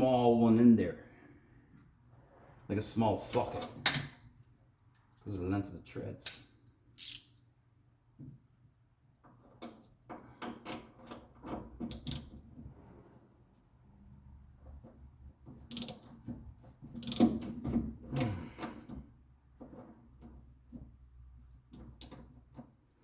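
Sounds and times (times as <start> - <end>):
ratchet wrench clicking: 15.7 - 16.0.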